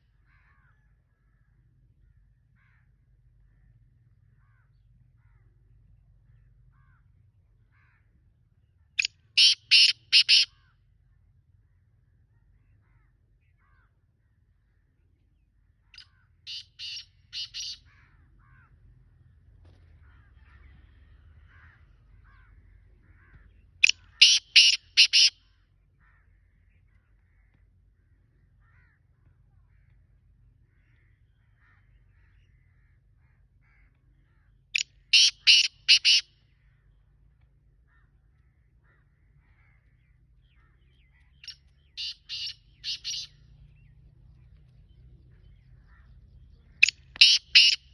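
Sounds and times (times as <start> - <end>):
bird harsh grating calls: 9.4 - 10.7, 16.0 - 18.7, 20.0 - 25.4, 35.0 - 36.3, 40.6 - 43.4, 46.7 - 47.9.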